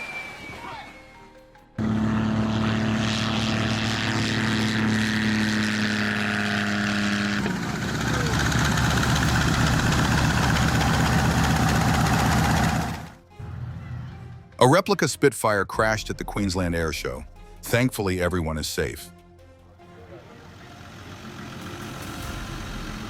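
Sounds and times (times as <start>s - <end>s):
propeller aircraft engine: 1.8s - 13.2s, 20.3s - 23.0s.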